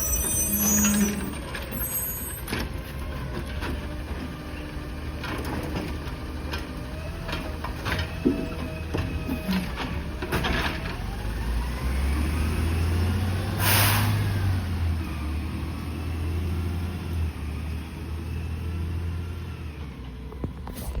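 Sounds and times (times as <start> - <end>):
air hiss: 13.6 - 14.2.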